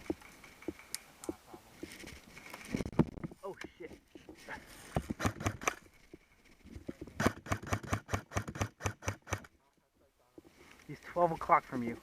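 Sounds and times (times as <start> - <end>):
airsoft gun firing: 5.2 - 5.8, 7.2 - 9.5.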